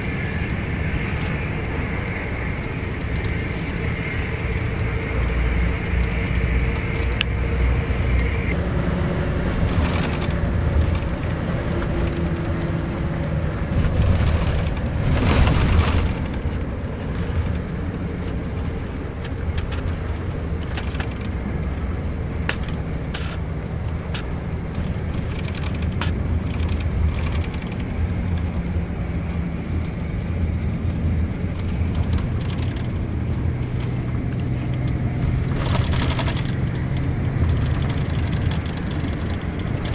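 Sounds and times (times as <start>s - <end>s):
bus diesel engine hum: 0.0s - 39.9s
road noise: 0.0s - 39.9s
clicks and rattles: 9.4s - 39.9s.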